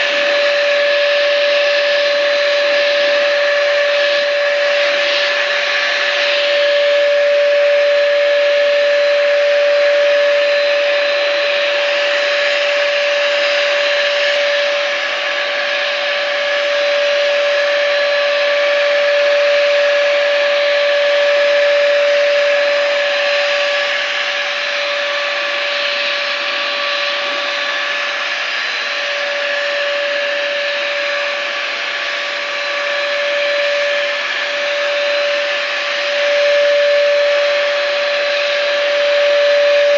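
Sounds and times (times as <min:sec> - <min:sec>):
electric spray gun motor whine: 0:00.0 - 0:39.9.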